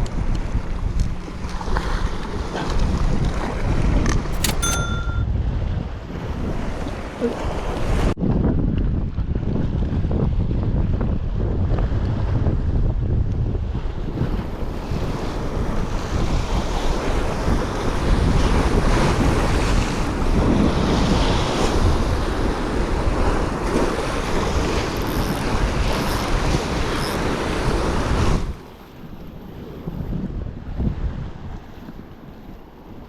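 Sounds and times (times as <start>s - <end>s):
wind buffeting the microphone: 5.2s - 33.0s.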